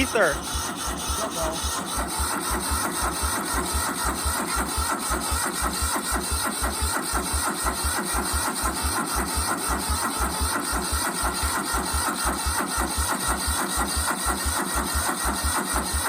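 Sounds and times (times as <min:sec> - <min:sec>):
men talking: 0:00.0 - 0:00.4, 0:01.1 - 0:01.7
engine cranking on starter: 0:00.0 - 0:16.0.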